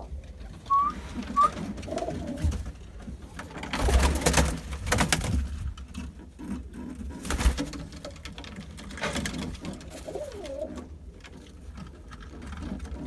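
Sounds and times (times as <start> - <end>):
bird cooing: 0.7 - 2.4, 10.0 - 10.9.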